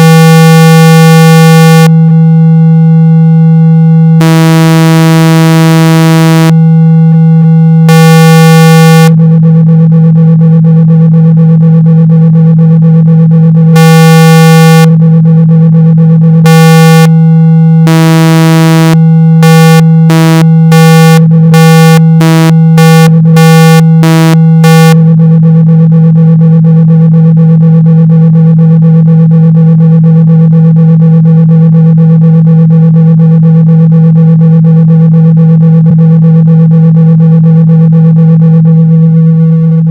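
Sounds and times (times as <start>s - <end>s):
buzzy pulsing tone: 0.0s - 9.5s, 13.7s - 15.0s, 16.4s - 25.2s
low synthesized hum: 0.0s - 39.9s.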